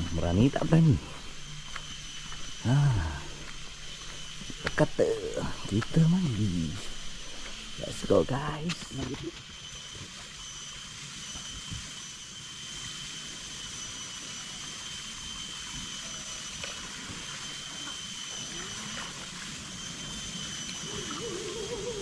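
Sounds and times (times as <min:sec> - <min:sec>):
high-pitched insect drone: 0:00.0 - 0:22.0
water rushing: 0:18.4 - 0:22.0.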